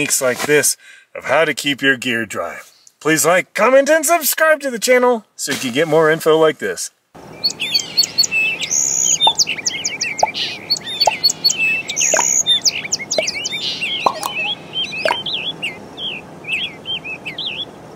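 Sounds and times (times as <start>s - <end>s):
birds chirping and singing: 7.2s - 17.9s.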